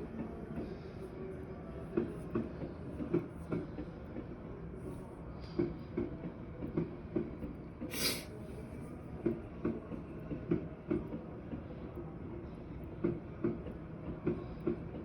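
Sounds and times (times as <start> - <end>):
low train rumble: 0.0 - 15.0
short hiss: 7.9 - 8.3.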